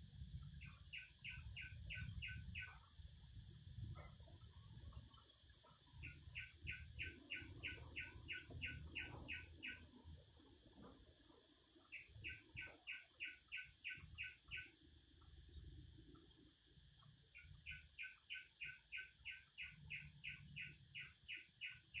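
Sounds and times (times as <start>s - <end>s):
bird chirping: 0.6s - 2.8s, 5.8s - 14.7s, 17.0s - 22.0s
cicada buzzing: 6.0s - 14.7s.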